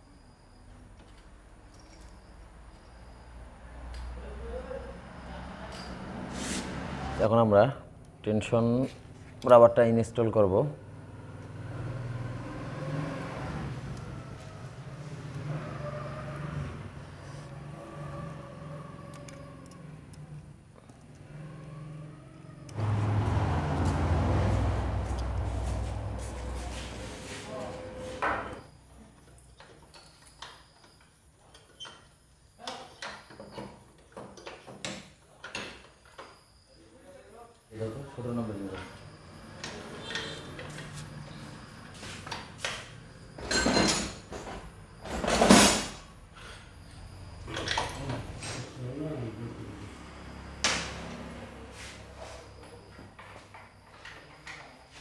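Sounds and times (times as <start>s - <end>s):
vehicle engine drone: 10.3s - 28.7s, 44.6s - 53.6s.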